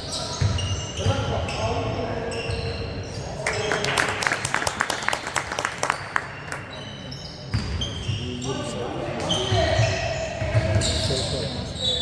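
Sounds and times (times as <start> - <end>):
spectators clapping: 3.4 - 6.7.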